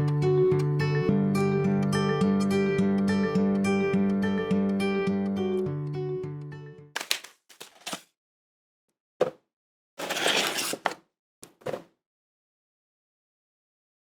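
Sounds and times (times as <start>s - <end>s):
food preparation scrapes: 7.0s - 8.0s, 10.0s - 11.0s.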